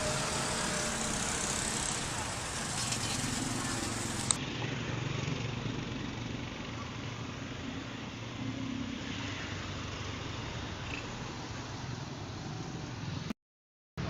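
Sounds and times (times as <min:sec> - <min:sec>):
vehicle engine idling: 0:00.0 - 0:04.9.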